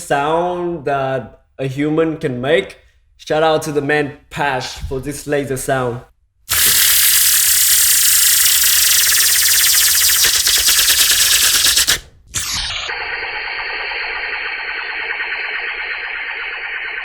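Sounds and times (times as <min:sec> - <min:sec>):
beatboxed laser sound: 0:06.5 - 0:17.0.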